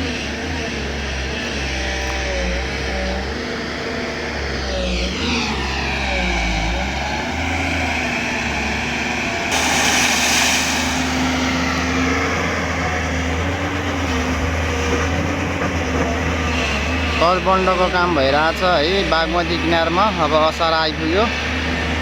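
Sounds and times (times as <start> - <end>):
excavator diesel engine running: 0.0 - 22.0
hydraulic whine: 0.0 - 22.0
loud hiss: 9.5 - 11.7.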